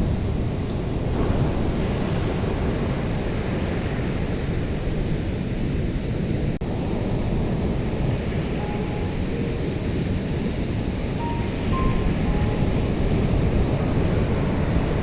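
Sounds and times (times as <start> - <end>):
ocean waves breaking: 6.7 - 15.0.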